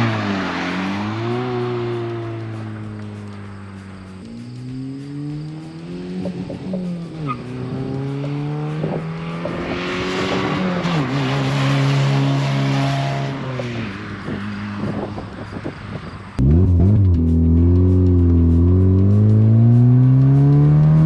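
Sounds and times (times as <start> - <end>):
car accelerating past: 0.0 - 21.0.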